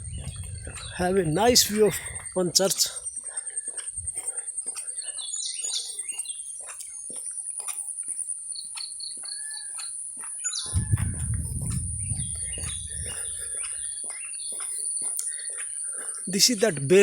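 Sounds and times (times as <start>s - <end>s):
low rumble: 0.0s - 1.4s, 10.7s - 13.5s
birds chirping: 0.0s - 17.0s.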